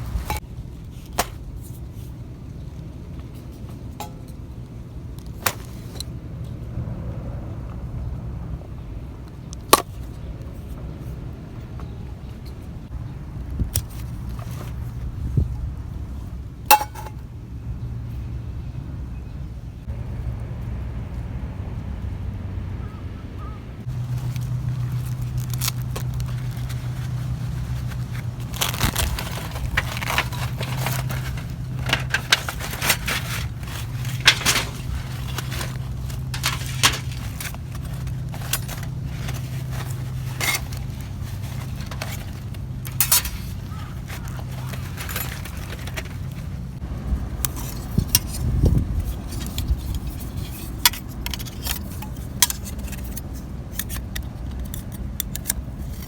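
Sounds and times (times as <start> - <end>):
metal camp gear clinking: 16.7 - 17.2, 23.9 - 46.8, 47.4 - 56.0.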